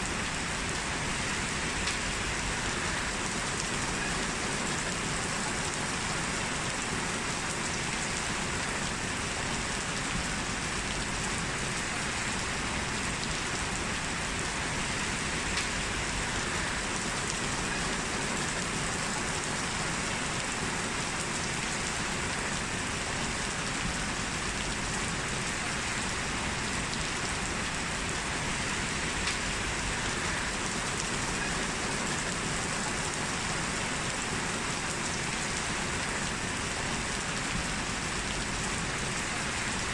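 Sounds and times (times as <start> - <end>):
heavy rain on hard surfaces: 0.0 - 39.9
loud raindrop ticks: 1.6 - 2.4, 15.2 - 16.1, 28.9 - 29.7.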